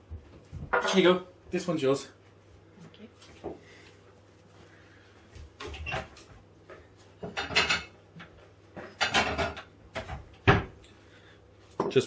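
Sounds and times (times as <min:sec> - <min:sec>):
kitchen items knocking and scraping: 0:00.6 - 0:01.2, 0:07.2 - 0:10.8.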